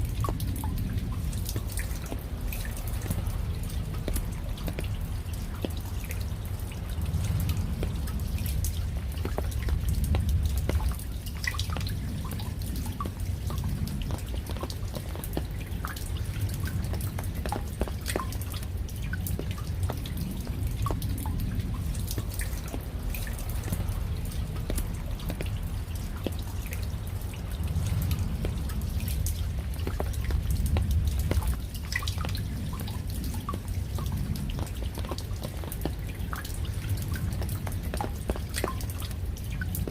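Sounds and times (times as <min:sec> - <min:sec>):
low rumble of rain: 0:00.0 - 0:39.9
raindrops dripping: 0:00.0 - 0:39.9.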